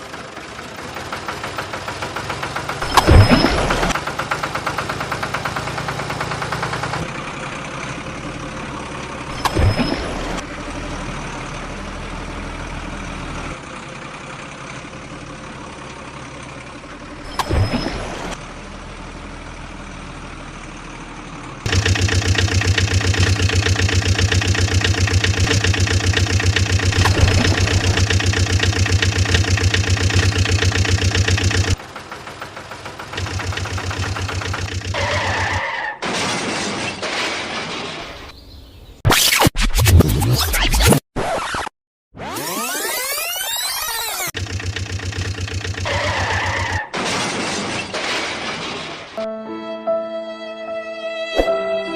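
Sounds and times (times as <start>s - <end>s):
engine idling and running: 0.0s - 35.7s, 43.7s - 47.0s.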